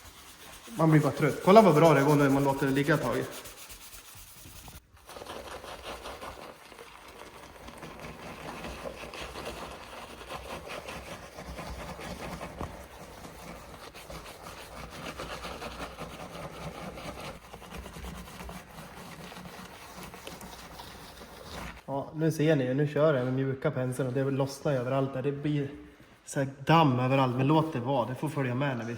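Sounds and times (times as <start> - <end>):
brush scrubbing car body: 0.0 - 21.8.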